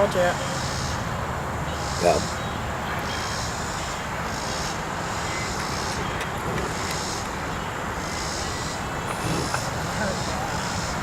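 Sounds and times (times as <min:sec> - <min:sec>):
outdoor background rush: 0:00.0 - 0:11.0.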